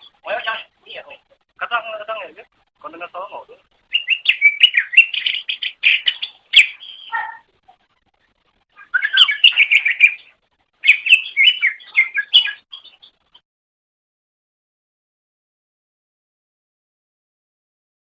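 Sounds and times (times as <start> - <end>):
bird chattering song: 3.9 - 7.4, 8.8 - 13.2.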